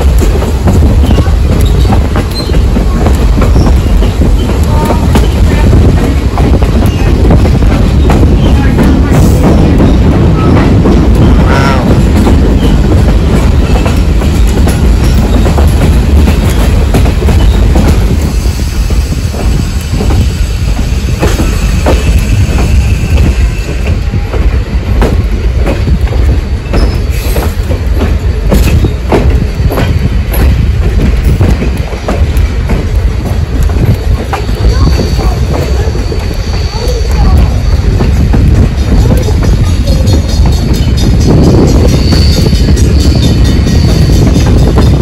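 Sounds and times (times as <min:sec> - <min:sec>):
steam train rumbling on track: 0:00.0 - 0:45.0
wheels clicking over rail joints: 0:21.1 - 0:45.0
wheel squeal: 0:26.7 - 0:27.3.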